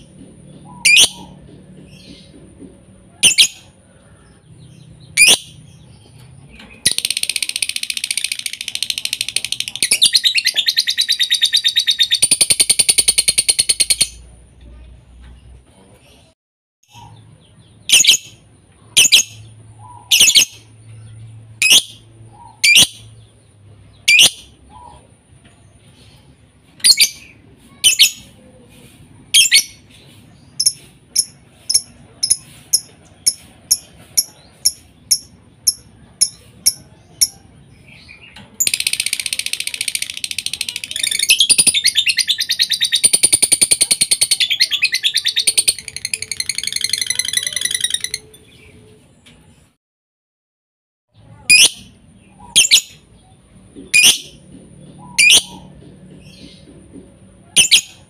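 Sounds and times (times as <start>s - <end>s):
bird chirping and trilling: 0.5s - 2.3s, 3.2s - 3.7s, 5.0s - 5.8s, 6.5s - 14.2s, 16.9s - 23.3s, 23.9s - 25.1s, 26.1s - 28.4s, 29.3s - 48.8s, 51.3s - 53.2s, 53.9s - 56.5s, 57.5s - 58.0s.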